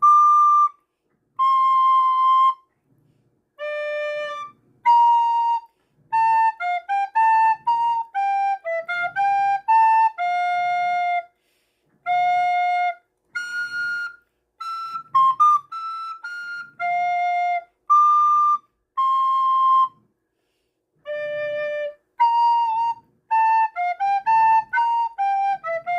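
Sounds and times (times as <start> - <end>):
recorder melody: 12.1 - 20.0.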